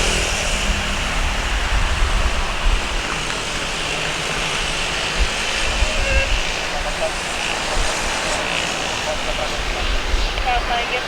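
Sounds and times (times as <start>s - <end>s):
jet engines roaring with whine: 0.0s - 11.0s.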